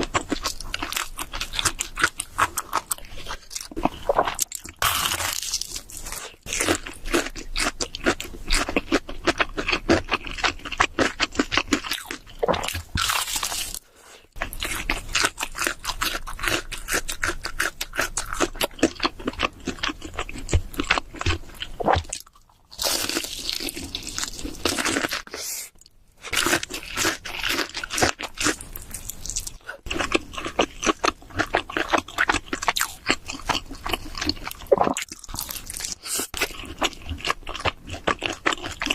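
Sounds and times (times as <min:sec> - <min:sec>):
crunching and chewing: 0:00.0 - 0:38.9.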